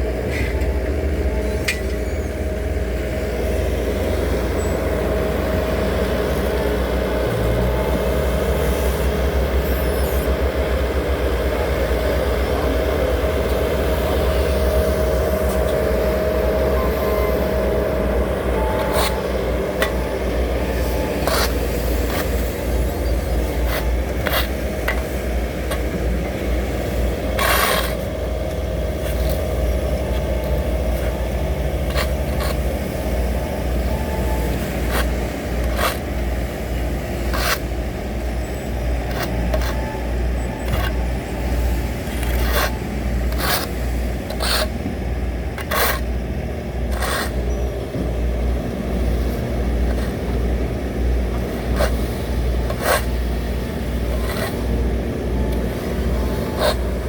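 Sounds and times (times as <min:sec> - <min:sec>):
heavy diesel machinery rumbling: 0:00.0 - 0:57.0
sharp scrapes and clanks: 0:18.8 - 0:19.2, 0:21.0 - 0:25.1, 0:27.3 - 0:28.1, 0:31.8 - 0:32.7, 0:34.8 - 0:36.2, 0:37.2 - 0:37.7, 0:39.0 - 0:40.0, 0:42.0 - 0:44.8, 0:45.6 - 0:46.1, 0:46.9 - 0:47.4, 0:51.4 - 0:53.2, 0:54.0 - 0:54.8, 0:56.4 - 0:57.0.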